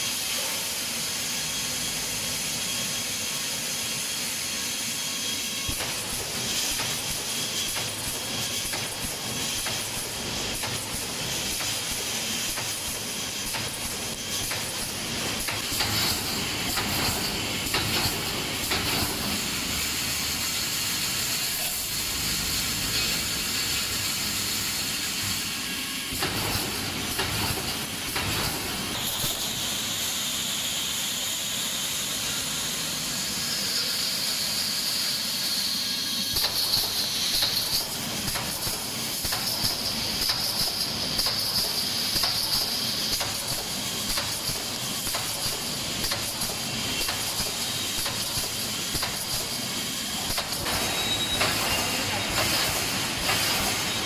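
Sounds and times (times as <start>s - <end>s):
compressed air hissing: 0.0s - 54.0s
machine knocks and clanks: 5.7s - 19.4s, 26.1s - 29.4s, 36.4s - 49.5s, 50.3s - 54.0s.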